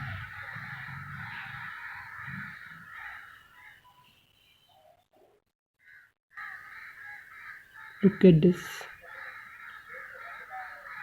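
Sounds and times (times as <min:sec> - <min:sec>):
crows cawing: 0:00.0 - 0:03.9, 0:05.8 - 0:08.2, 0:08.9 - 0:11.0.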